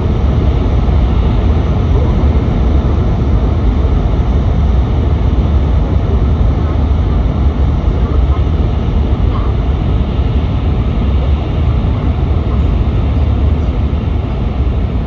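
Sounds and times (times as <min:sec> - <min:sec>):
train rumble inside cabin: 0:00.0 - 0:15.0.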